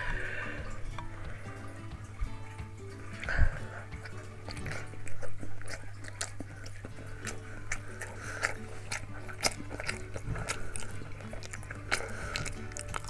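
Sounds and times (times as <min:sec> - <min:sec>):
person chewing with mouth smacks: 0:00.0 - 0:13.0.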